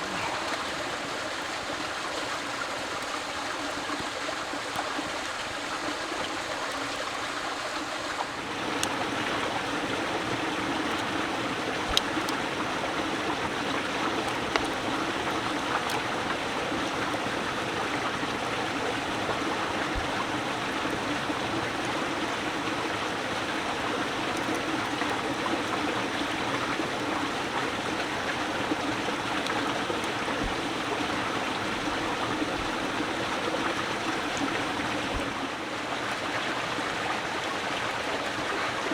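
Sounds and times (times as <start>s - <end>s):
flowing water rushing: 0.0s - 38.9s
faint clicks: 8.6s - 35.4s.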